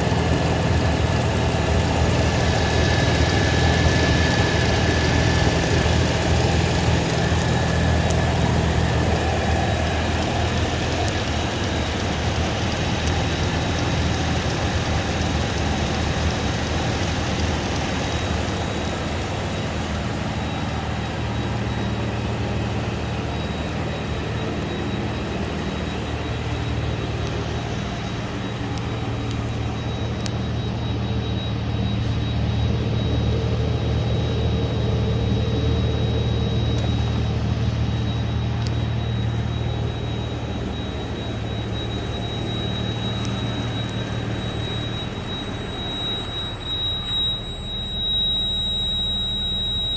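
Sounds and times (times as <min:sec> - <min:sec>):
engine idling: 0:00.0 - 0:49.9
high-pitched whine: 0:00.0 - 0:49.9.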